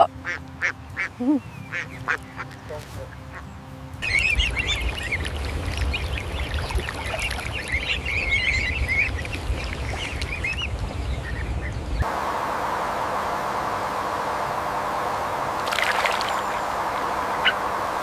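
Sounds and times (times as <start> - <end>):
ducklings peeping: 0.0 - 12.1, 15.9 - 17.8
running water: 12.1 - 18.0.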